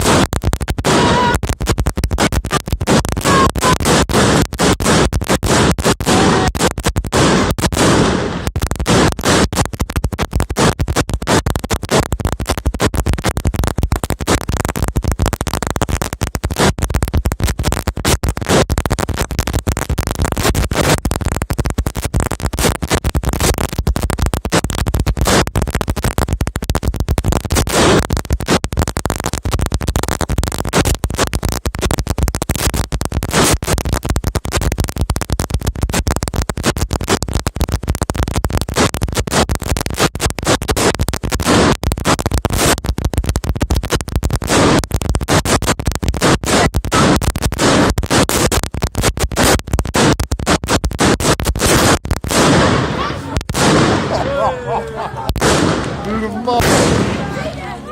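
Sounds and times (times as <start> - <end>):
louder firecracker bangs: 0.0 - 9.6, 27.5 - 28.6, 51.0 - 54.6, 55.2 - 57.5.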